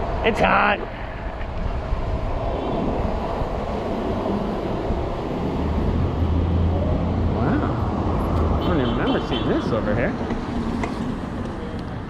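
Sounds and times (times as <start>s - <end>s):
wind rushing over microphone: 0.0s - 8.6s
low traffic rumble: 0.0s - 12.0s.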